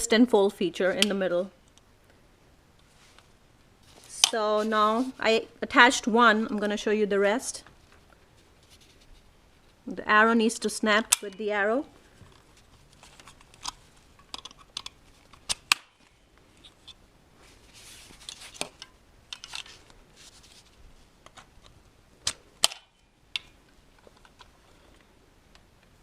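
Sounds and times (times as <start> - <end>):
faint handling rustle: 2.0 - 5.6, 7.5 - 9.9, 11.4 - 21.9.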